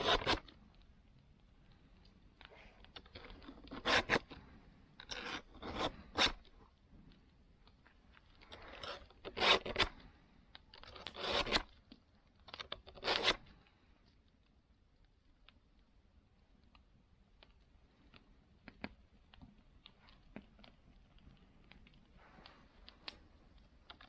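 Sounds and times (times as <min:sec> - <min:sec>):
file rasping across saw teeth: 0:00.0 - 0:00.4, 0:03.8 - 0:04.2, 0:08.7 - 0:09.9, 0:11.1 - 0:11.6.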